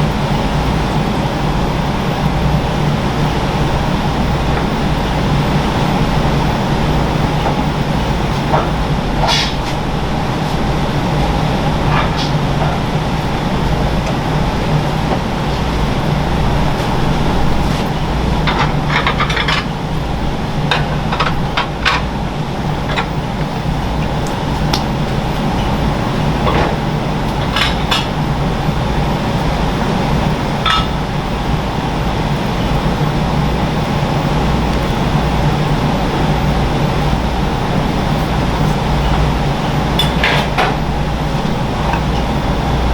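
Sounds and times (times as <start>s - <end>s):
kitchen equipment hum: 0.0s - 42.9s
dishes and utensils clinking: 30.6s - 31.1s.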